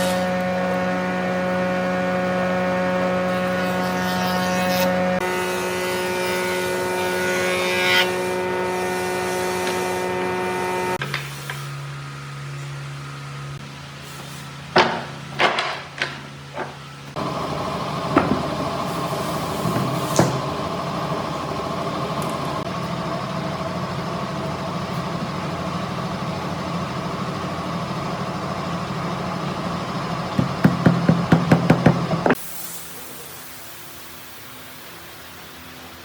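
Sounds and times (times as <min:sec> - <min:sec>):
machine humming: 0:00.0 - 0:11.0, 0:16.5 - 0:36.0
knocks: 0:18.1 - 0:18.5, 0:30.4 - 0:32.4.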